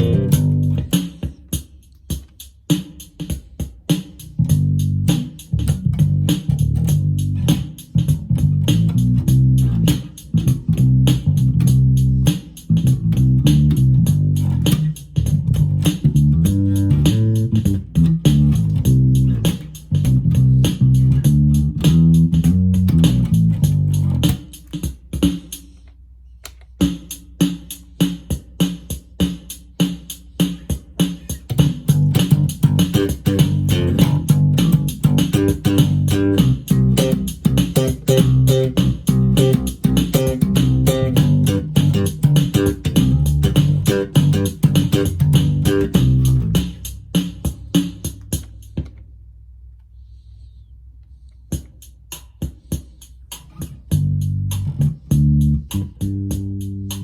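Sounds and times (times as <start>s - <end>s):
electric bass guitar bassline: 0.0s - 0.9s, 4.4s - 24.4s, 31.6s - 46.8s, 53.8s - 57.0s
drum machine ticking beat: 0.0s - 25.9s, 26.5s - 49.0s, 51.4s - 57.0s.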